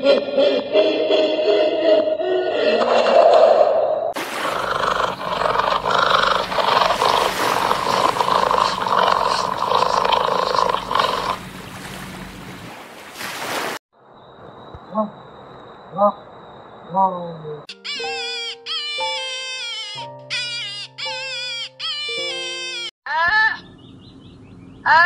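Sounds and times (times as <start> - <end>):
big cat growling and roaring: 2.6 - 11.6.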